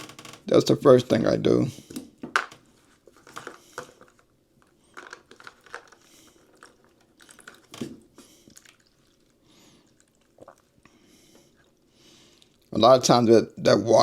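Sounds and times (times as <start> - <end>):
hose handling clicks and crackles: 1.9 - 8.0.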